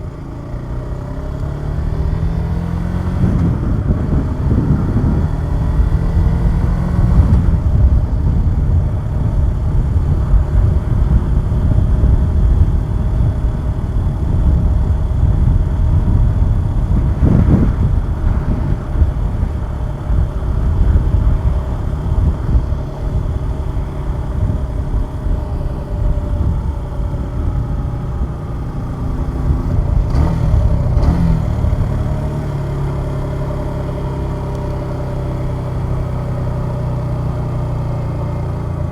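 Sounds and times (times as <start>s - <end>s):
motorcycle engine running: 0.0s - 38.9s
wind rumble on microphone: 0.0s - 38.9s.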